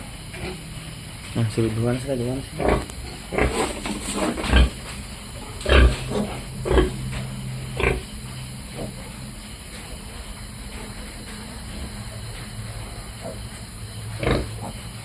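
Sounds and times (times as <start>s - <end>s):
pigs grunting: 2.4s - 9.4s, 12.7s - 15.0s.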